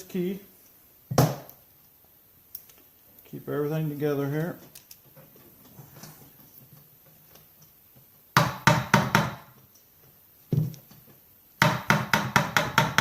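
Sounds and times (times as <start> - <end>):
tool knocking on metal part: 8.4 - 9.5, 11.6 - 13.0.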